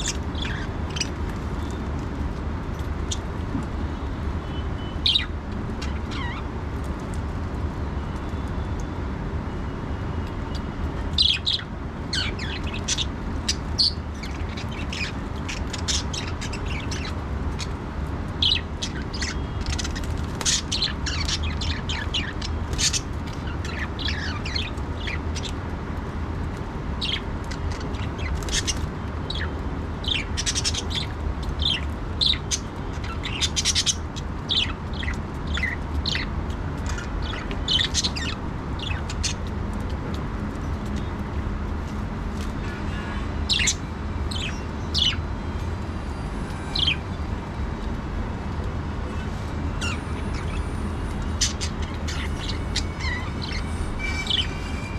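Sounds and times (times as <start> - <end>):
budgerigars chirping: 0.0 - 1.2, 11.2 - 17.7, 18.4 - 25.5, 27.0 - 39.4, 43.5 - 45.2, 49.8 - 54.7.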